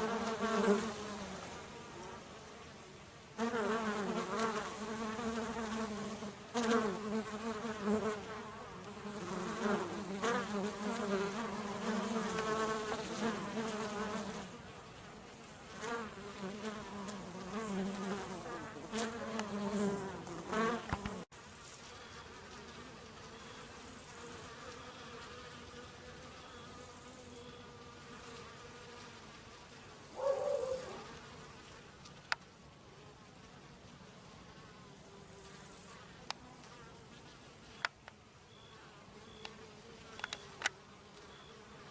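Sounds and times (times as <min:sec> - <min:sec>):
bees buzzing: 0:03.4 - 0:29.4.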